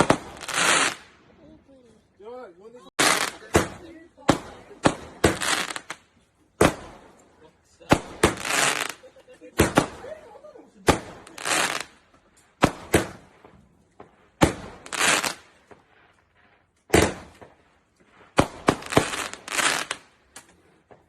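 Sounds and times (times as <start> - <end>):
fireworks crackling hiss: 0.0 - 1.2, 2.9 - 6.0, 7.9 - 10.2, 10.8 - 13.6, 14.4 - 21.0
fireworks bangs: 0.0 - 1.3, 2.9 - 21.0.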